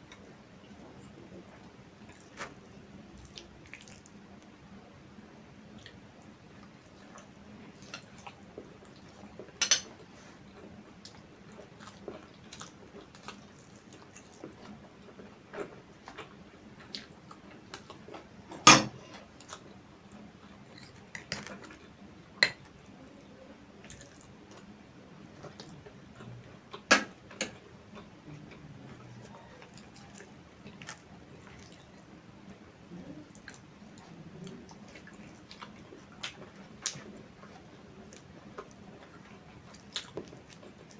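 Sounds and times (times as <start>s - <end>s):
soft chewing: 0.0s - 40.9s
dishes clinking: 9.6s - 9.9s, 18.6s - 19.0s.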